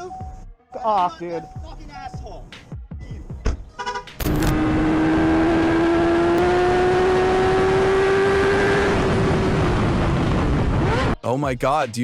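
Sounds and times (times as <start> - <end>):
wind and road noise: 3.4 - 11.2
motorcycle engine: 4.2 - 11.2.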